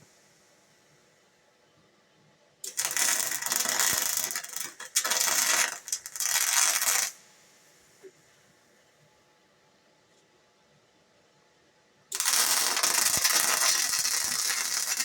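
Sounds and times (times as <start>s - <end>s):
welding arc crackling: 2.6s - 7.2s, 12.1s - 15.0s.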